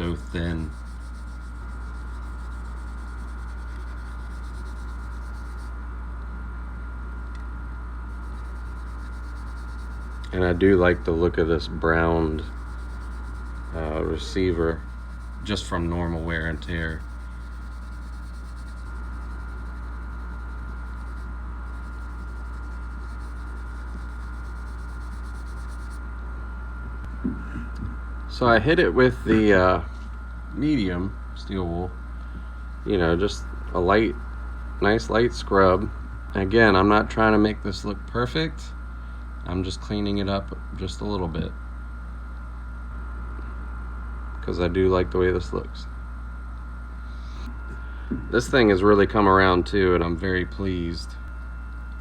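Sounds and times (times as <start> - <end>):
thin steady tone: 0.0 - 5.7, 8.1 - 26.0
low electrical hum: 0.0 - 52.0.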